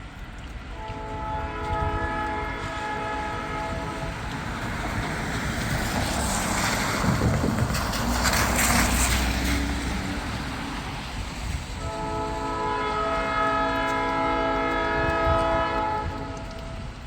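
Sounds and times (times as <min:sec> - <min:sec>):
wind: 0:00.0 - 0:17.0
locomotive air horn chord: 0:00.8 - 0:04.1, 0:11.8 - 0:16.7.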